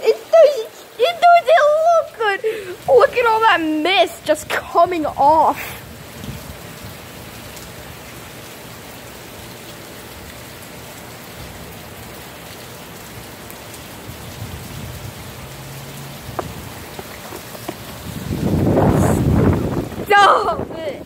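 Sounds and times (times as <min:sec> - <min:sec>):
heavy rain hissing: 0:00.0 - 0:21.0.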